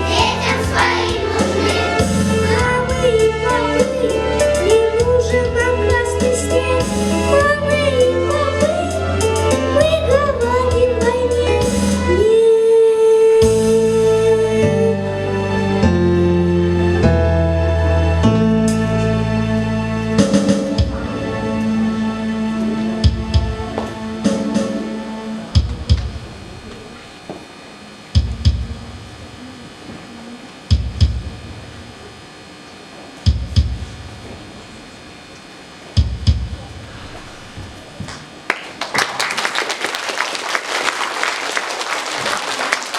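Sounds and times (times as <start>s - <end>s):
instrumental backing track: 0.0s - 12.5s, 13.4s - 27.1s
heavy low drum hits: 23.0s - 24.9s, 25.6s - 26.7s, 36.0s - 37.8s.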